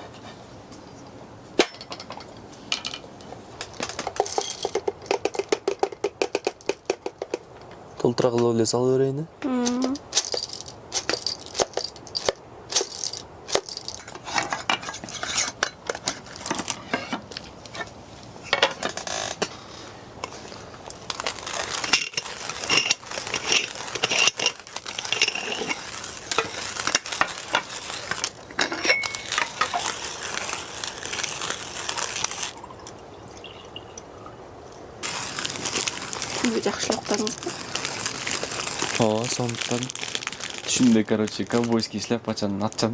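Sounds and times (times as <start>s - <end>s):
metal utensils clinking: 3.9s - 5.2s, 9.7s - 17.2s, 21.5s - 29.9s.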